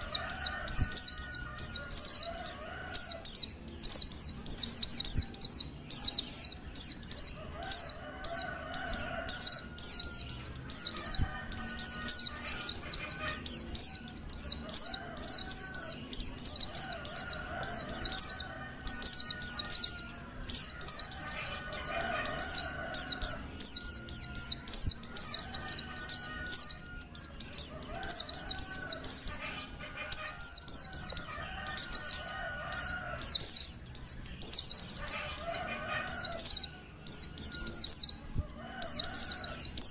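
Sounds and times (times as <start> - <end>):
bird twittering: 0.0 - 39.9.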